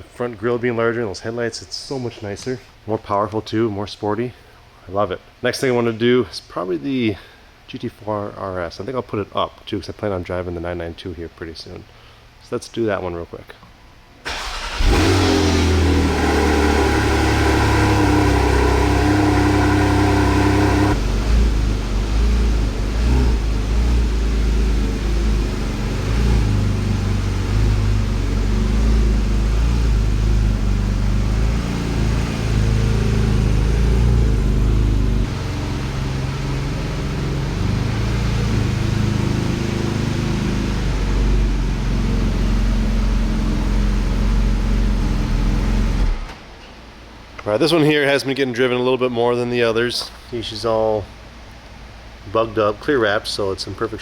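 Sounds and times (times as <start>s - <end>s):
sports car engine starting and idling: 14.2s - 47.3s.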